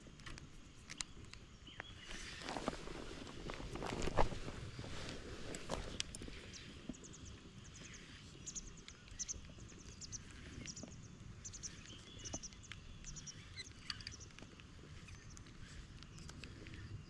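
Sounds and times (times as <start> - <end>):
low outdoor background: 0.0 - 17.0
soft clicks: 0.2 - 2.2, 5.5 - 17.0
faint high bird chirps: 5.8 - 17.0.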